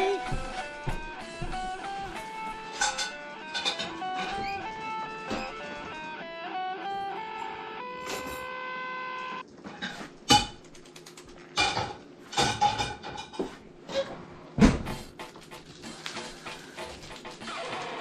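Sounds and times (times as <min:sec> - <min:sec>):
guitar chord ringing: 0:00.0 - 0:09.4
clattering knocks and rattles: 0:02.7 - 0:05.6.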